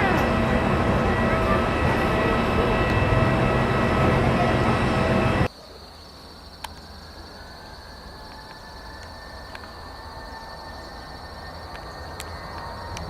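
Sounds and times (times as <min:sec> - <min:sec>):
jet engines roaring and whining: 0:00.0 - 0:05.5, 0:08.3 - 0:13.0
faint high whine: 0:00.0 - 0:13.0.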